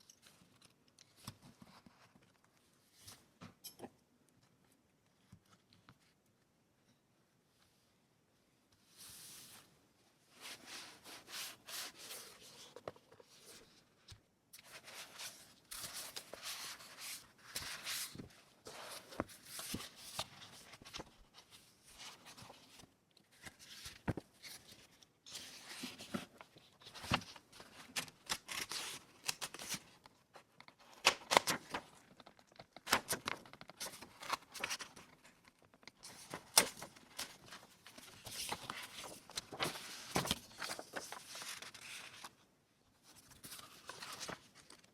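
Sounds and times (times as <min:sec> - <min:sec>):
paper rustling and crinkling: 0:10.4 - 0:42.4, 0:43.0 - 0:44.9.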